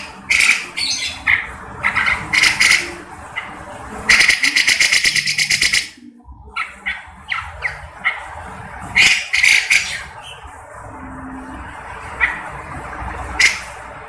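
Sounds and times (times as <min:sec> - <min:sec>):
bird calling in scratchy bursts: 0:00.0 - 0:10.5, 0:13.3 - 0:14.0.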